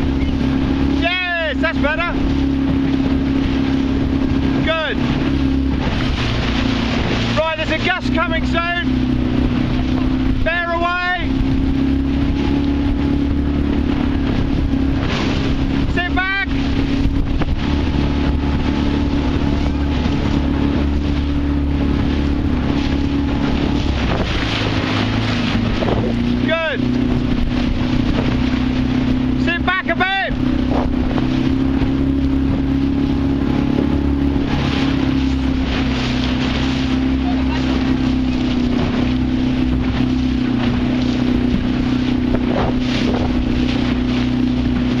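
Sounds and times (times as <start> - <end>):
motorboat engine running: 0.0 - 45.0
water rushing: 0.0 - 45.0
wind buffeting microphone: 0.0 - 45.0
wind rushing: 11.2 - 29.3.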